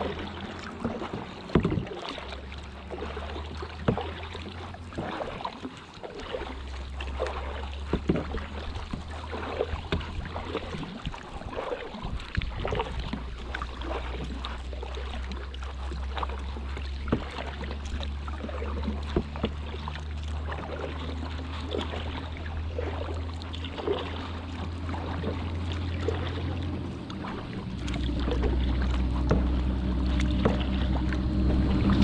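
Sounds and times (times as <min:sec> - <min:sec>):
paddle splashes and drips: 0:00.0 - 0:32.0
steady low hum: 0:18.2 - 0:32.0.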